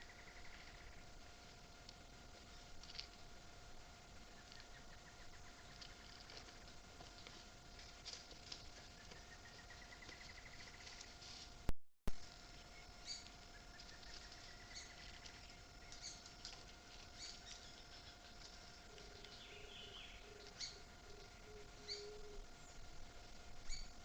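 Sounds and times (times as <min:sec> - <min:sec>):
birds chirping: 0:00.0 - 0:01.8, 0:04.0 - 0:11.2, 0:12.4 - 0:24.0
low evenly spaced bird notes: 0:00.0 - 0:11.2, 0:12.3 - 0:24.0.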